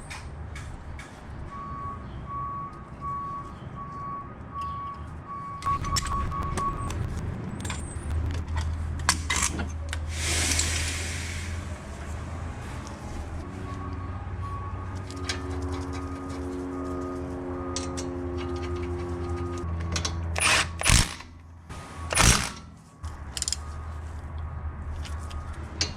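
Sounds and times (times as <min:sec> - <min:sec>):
short hiss: 0:10.1 - 0:11.7
metal tools clinking: 0:17.6 - 0:21.1.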